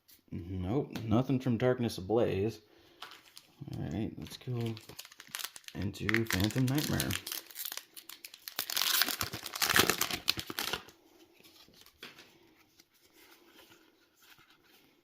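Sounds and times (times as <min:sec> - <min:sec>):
foil wrapper crinkling and tearing: 0:03.0 - 0:11.0.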